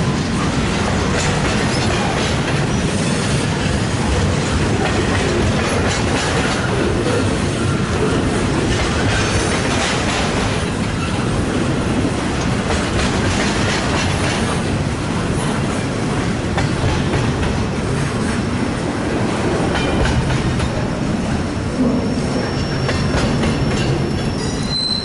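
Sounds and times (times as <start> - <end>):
freight train rumbling past: 0.0 - 25.0
wheels clicking over rail joints: 0.2 - 18.2.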